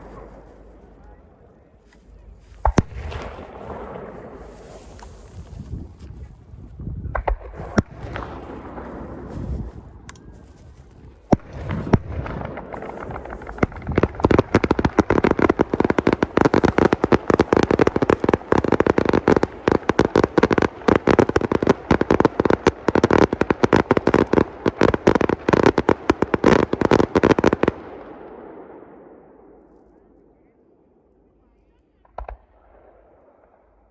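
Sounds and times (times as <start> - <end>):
fireworks banging: 2.6 - 5.9, 11.0 - 27.9, 32.1 - 32.7.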